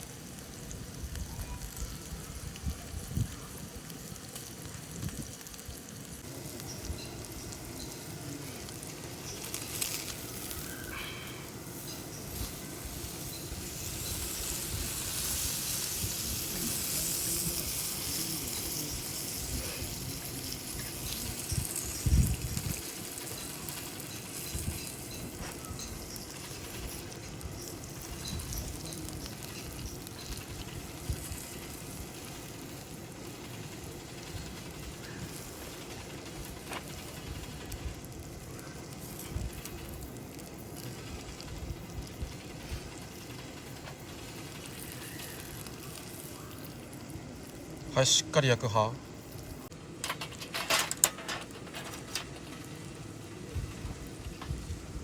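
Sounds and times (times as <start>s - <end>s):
meat sizzling on grill: 0.0s - 55.0s.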